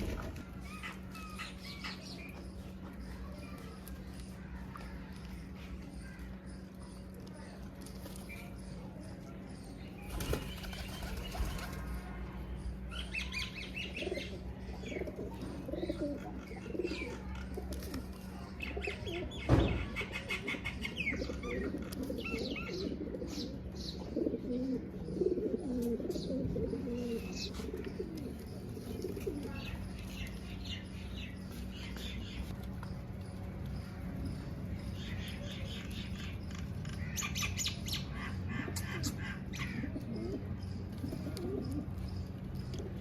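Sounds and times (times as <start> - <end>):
steady low hum: 0.0 - 43.0
pigeons flapping wings: 10.0 - 11.9
pigeons cooing: 13.8 - 30.8, 38.3 - 42.0.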